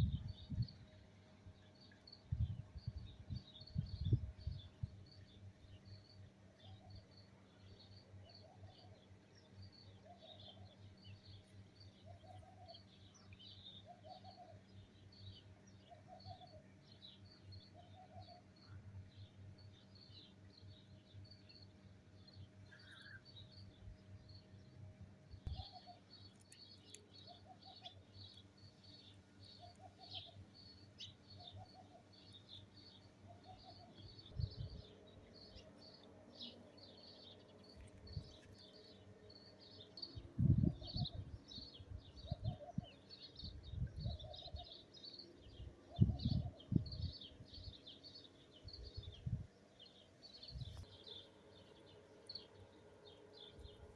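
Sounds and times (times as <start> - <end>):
wind on microphone: 0.0 - 0.9, 2.3 - 5.0, 34.3 - 34.9, 40.2 - 44.6, 45.6 - 47.7, 48.7 - 49.5, 50.4 - 50.9
small birds chirping: 0.0 - 53.9.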